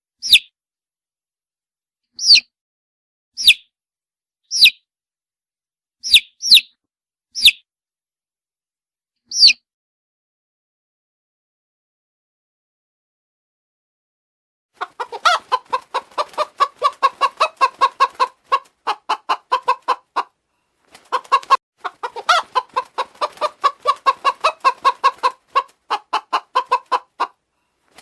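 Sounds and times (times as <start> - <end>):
hen squawking: 14.8 - 20.3, 21.1 - 27.3
hen clucking rapidly: 14.8 - 27.4.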